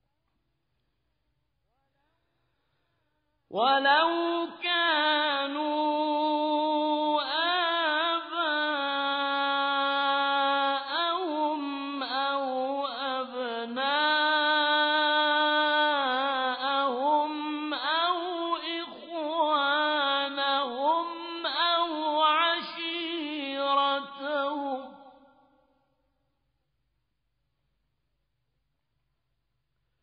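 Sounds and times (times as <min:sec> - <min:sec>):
person chanting melodic recitation: 0:03.5 - 0:25.0.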